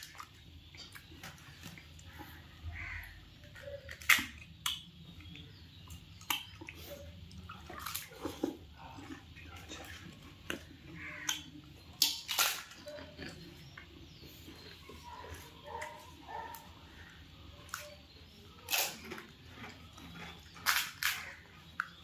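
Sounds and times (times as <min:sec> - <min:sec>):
wet slurping and chewing: 0:03.5 - 0:22.0
crisp shells crunching: 0:12.0 - 0:13.5, 0:18.7 - 0:21.6.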